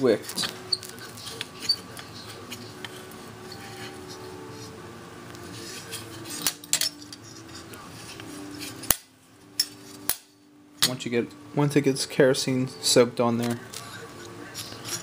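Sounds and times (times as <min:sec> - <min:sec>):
metallic clicks and scraping: 0:13.4 - 0:15.0.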